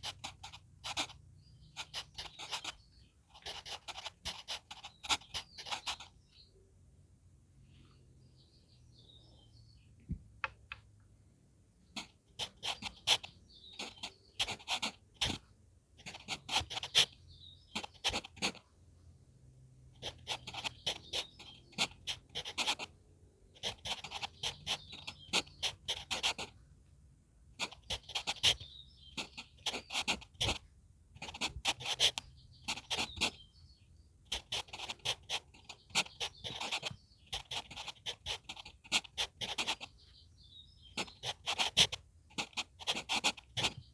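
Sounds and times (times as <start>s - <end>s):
pencil scratching on paper: 0.0s - 6.2s, 11.9s - 18.7s, 20.0s - 26.6s, 27.6s - 30.6s, 31.2s - 33.4s, 34.3s - 40.0s, 40.8s - 43.9s
faint birds chirping: 0.0s - 43.9s.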